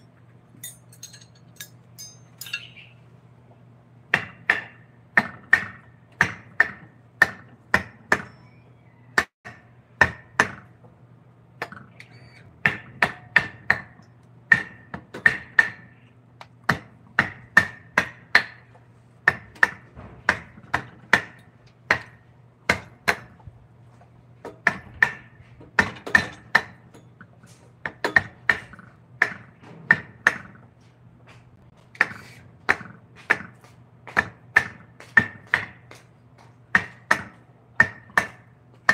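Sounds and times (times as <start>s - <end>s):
mallet striking chisel: 9.2s - 10.6s, 36.8s - 38.9s.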